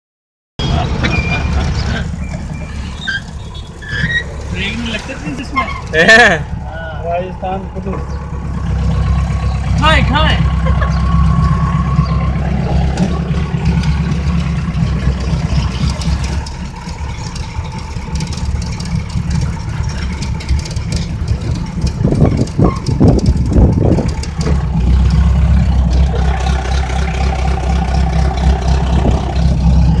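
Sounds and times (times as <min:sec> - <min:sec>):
jeep engine running: 0:00.6 - 0:30.0.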